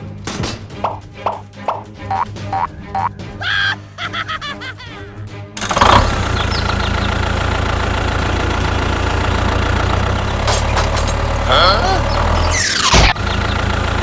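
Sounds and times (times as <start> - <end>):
vehicle engine rumbling: 5.6 - 14.0.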